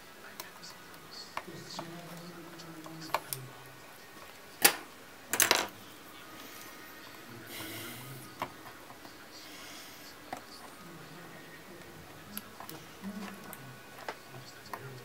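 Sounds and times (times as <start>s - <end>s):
small parts and tools clattering: 4.6s - 5.8s.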